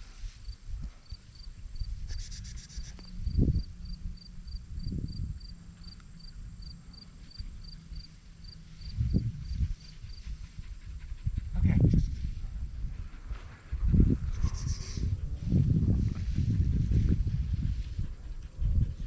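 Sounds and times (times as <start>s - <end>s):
rustle: 0.0s - 18.6s
insect chirping: 0.4s - 12.8s.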